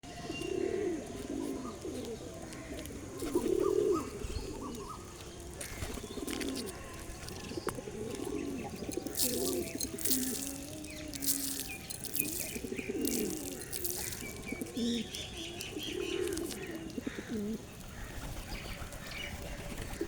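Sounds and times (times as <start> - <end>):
pigeons cooing: 0.1 - 20.0
sharp rustling or clattering: 8.8 - 15.2.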